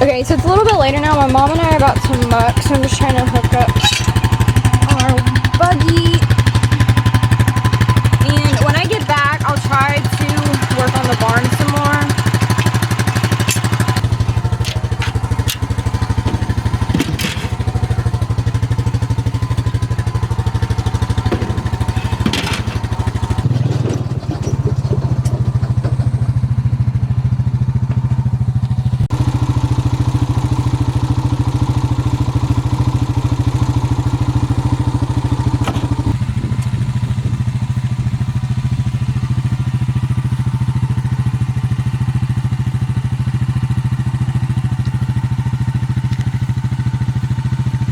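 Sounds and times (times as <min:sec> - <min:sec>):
clattering knocks: 0:00.0 - 0:29.2, 0:33.6 - 0:39.5
small engine running: 0:00.0 - 0:47.9.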